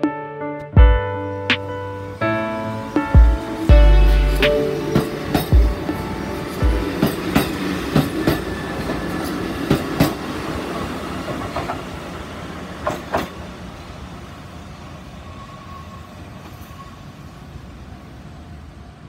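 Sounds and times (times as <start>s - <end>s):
train rumble: 2.7s - 14.3s
train wheels clacking over rail joints: 4.9s - 10.4s, 12.8s - 13.4s.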